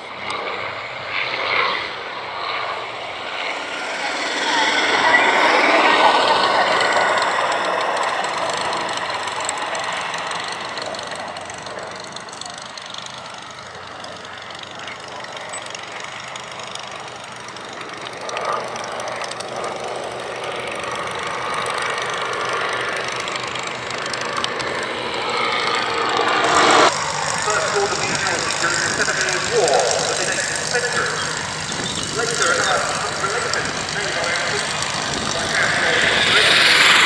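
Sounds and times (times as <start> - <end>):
aircraft engine drone: 0.0 - 37.0.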